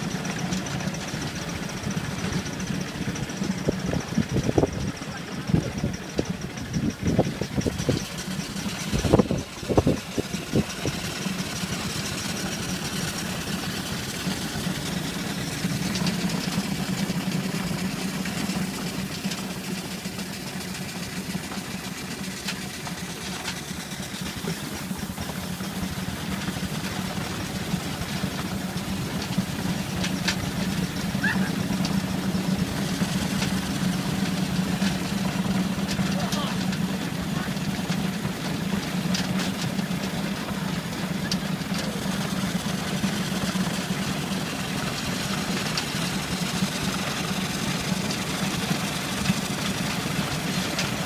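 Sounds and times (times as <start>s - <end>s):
vehicle engine humming: 0.0s - 51.0s.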